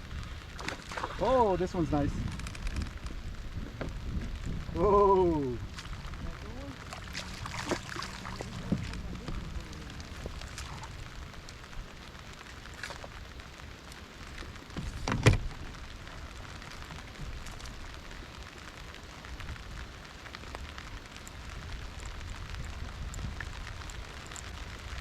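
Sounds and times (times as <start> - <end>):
wind on microphone: 0.0 - 12.3, 20.6 - 25.0
loud thump or splash: 7.1 - 9.4.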